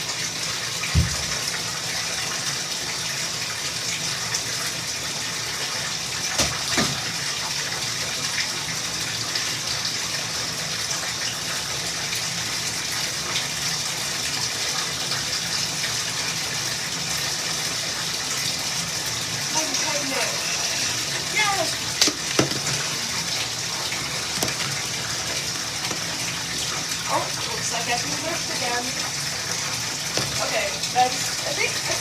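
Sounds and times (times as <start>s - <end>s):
bath tap water gushing: 0.0s - 32.0s
knocks: 22.0s - 22.8s.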